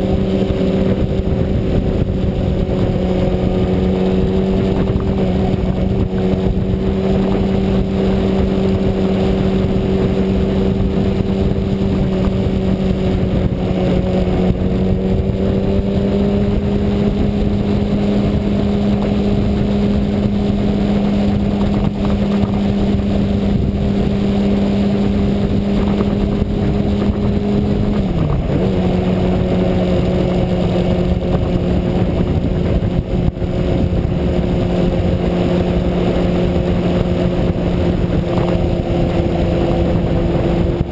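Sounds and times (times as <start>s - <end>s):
motorcycle engine running: 0.0s - 40.9s
wind and road noise: 0.0s - 40.9s.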